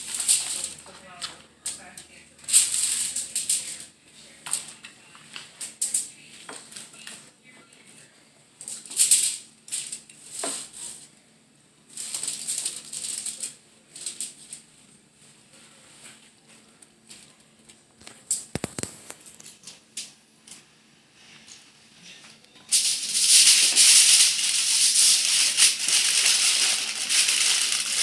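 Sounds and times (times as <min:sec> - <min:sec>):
aluminium foil crinkling: 0:00.0 - 0:07.3, 0:08.6 - 0:11.0, 0:11.9 - 0:14.7, 0:16.8 - 0:20.1, 0:22.7 - 0:28.0.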